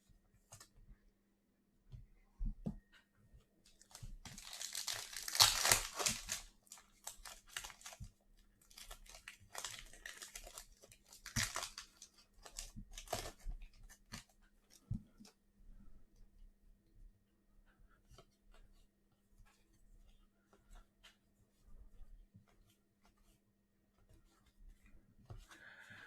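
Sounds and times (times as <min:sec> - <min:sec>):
plastic wrapper crinkling and tearing: 0:03.8 - 0:08.0, 0:08.6 - 0:13.4.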